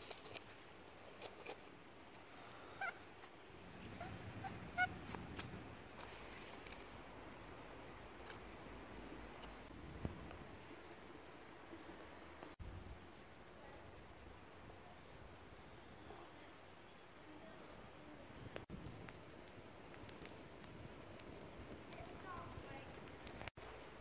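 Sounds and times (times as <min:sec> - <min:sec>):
small bird chirping: 0:07.8 - 0:10.6, 0:18.7 - 0:23.6.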